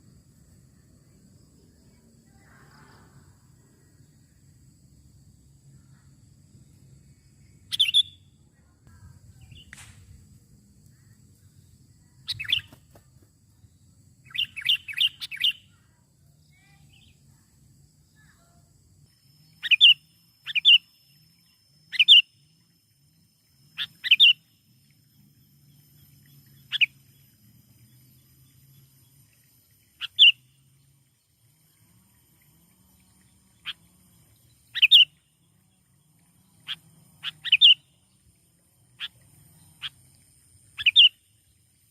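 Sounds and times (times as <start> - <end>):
bulbul chirping calls: 7.7 - 8.2, 12.3 - 12.8, 14.3 - 15.7, 19.4 - 21.0, 21.9 - 22.4, 23.8 - 24.5, 26.5 - 27.0, 30.0 - 30.4, 34.7 - 35.1, 36.7 - 37.8, 40.8 - 41.2.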